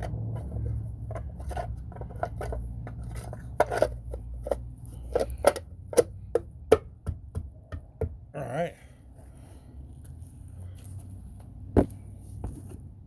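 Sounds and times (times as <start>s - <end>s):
tools clicking and knocking: 0.0s - 8.2s.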